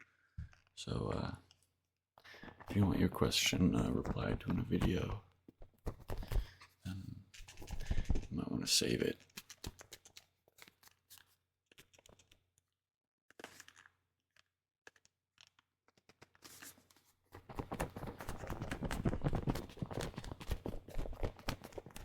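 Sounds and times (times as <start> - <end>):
crinkling handling noise: 1.5 - 8.3, 16.3 - 22.0.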